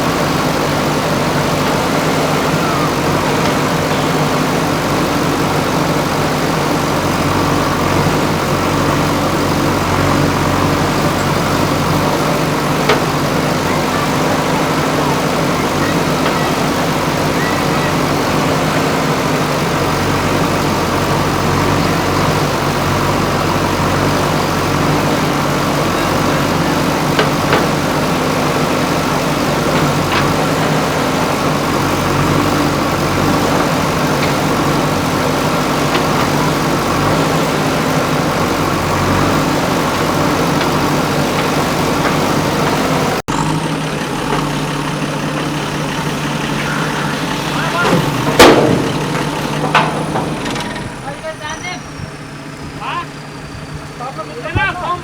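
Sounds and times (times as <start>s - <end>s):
diesel engine running: 0.0s - 55.0s
sharp knocks: 24.2s - 43.2s, 46.6s - 51.0s.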